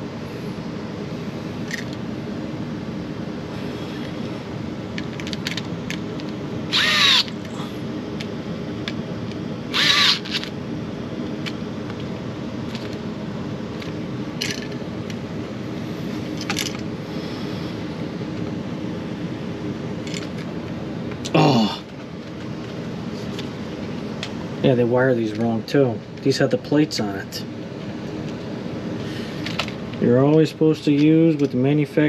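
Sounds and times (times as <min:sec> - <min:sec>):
cordless drill driving screw: 0:06.7 - 0:07.4, 0:09.7 - 0:10.5.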